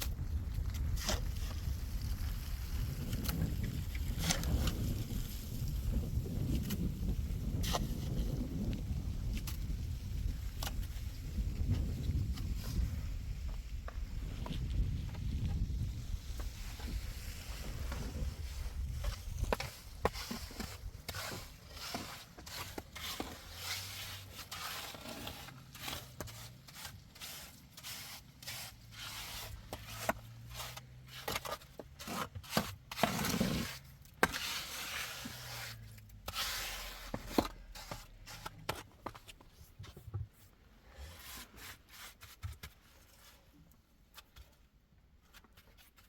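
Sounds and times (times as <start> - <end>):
scraping and rubbing: 3.1 - 5.4, 16.4 - 46.0.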